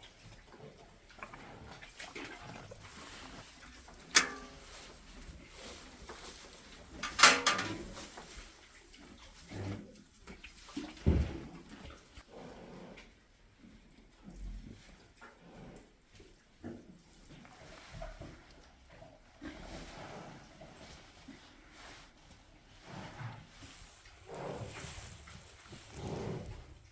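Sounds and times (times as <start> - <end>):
dull low thump: 11.0 - 11.6.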